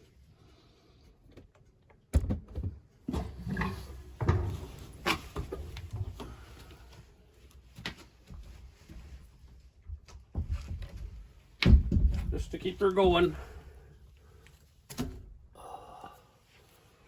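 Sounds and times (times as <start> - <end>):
wood clunks and scrapes: 2.4 - 6.5.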